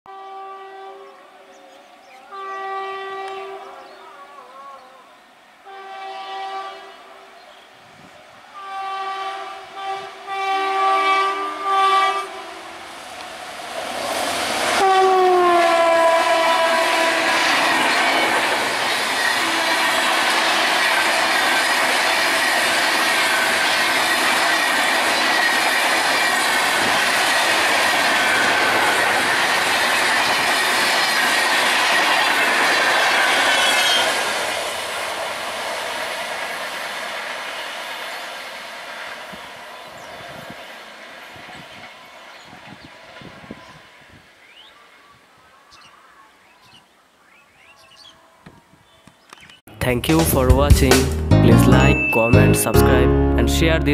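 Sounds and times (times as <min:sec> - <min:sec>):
train horn blasts: 0:00.1 - 0:01.3, 0:02.3 - 0:03.9, 0:05.6 - 0:07.3, 0:08.6 - 0:12.9, 0:14.8 - 0:17.6, 0:19.4 - 0:20.1
train rushing past: 0:08.5 - 0:44.4.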